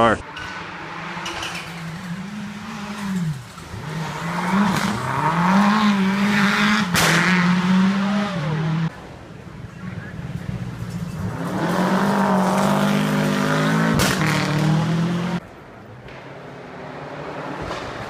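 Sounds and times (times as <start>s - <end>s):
rally car engine revving: 0.0s - 9.0s, 9.8s - 15.4s
sharp crack: 6.8s - 7.5s, 13.9s - 14.5s.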